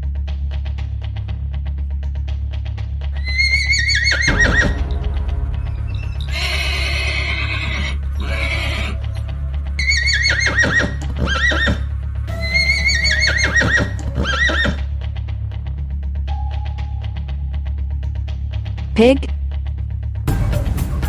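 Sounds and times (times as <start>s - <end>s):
horse whinnying: 3.2s - 4.8s, 6.3s - 14.9s.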